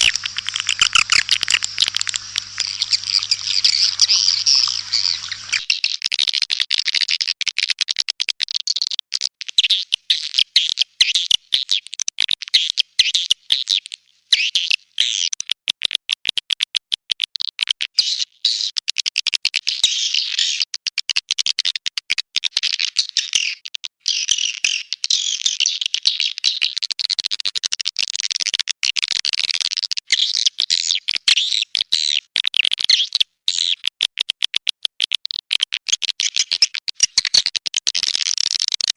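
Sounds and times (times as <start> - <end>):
swiftlet chattering chirps: 0.0 - 5.7.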